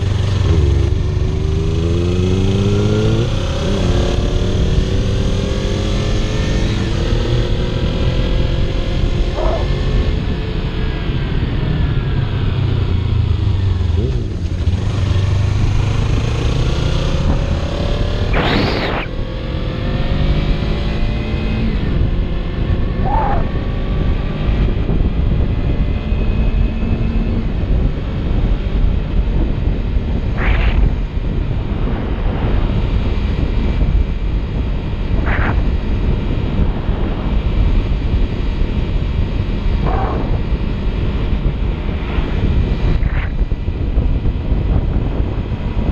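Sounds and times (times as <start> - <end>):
motorcycle engine running: 0.0 - 7.0, 8.9 - 19.1
wind rush on microphone: 0.0 - 45.9.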